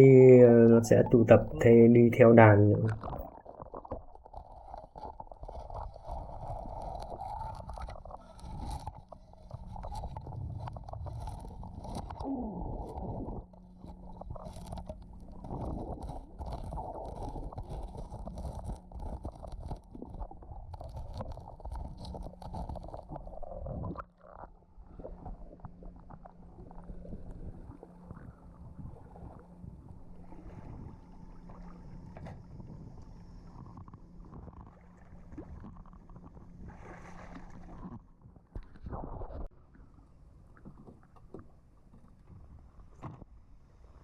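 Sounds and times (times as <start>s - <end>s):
boat engine drone underwater: 0.0s - 44.0s
underwater rumble of moving water: 0.0s - 44.0s
clicks and crackles: 2.9s - 28.4s, 37.5s - 39.5s.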